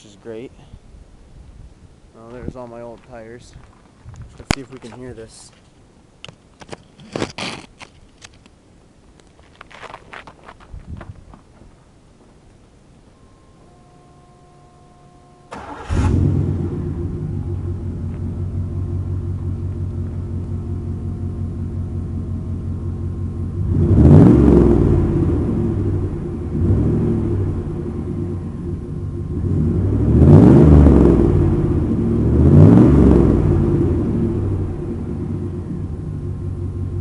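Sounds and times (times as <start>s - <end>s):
pickup engine idling and revving: 15.6s - 37.0s.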